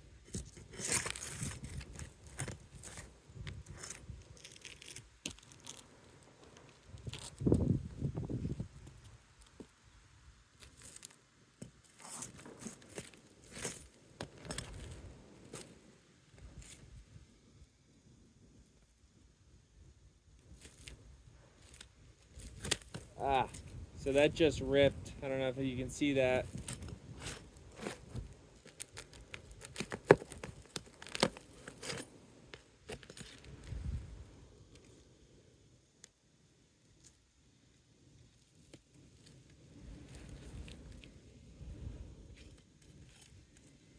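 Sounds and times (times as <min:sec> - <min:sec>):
roof shingle scraping and tearing: 0:00.4 - 0:03.1, 0:03.7 - 0:05.9, 0:26.5 - 0:32.1.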